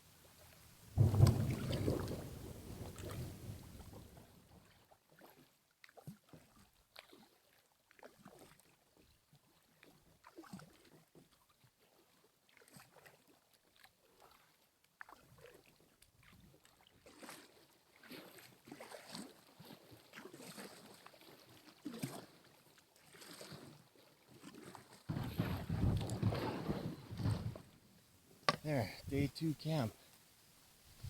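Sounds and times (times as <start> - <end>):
water splashing and dripping: 0.3 - 4.1
paddle dipping and knocking: 1.0 - 4.0, 25.1 - 30.3.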